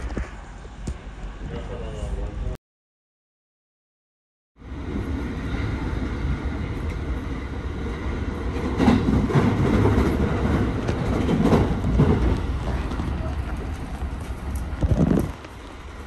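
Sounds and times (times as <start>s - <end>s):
train wheels rumbling on rail: 4.6s - 16.0s
wheels knocking on track: 8.6s - 15.6s.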